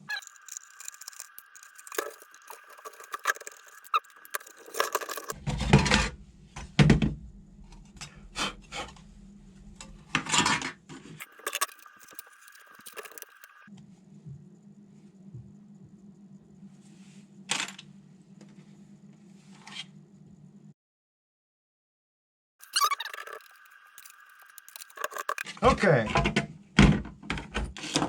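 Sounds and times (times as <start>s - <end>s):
small plastic parts clicking and rattling: 0.0s - 5.4s, 9.8s - 13.7s, 22.6s - 25.5s.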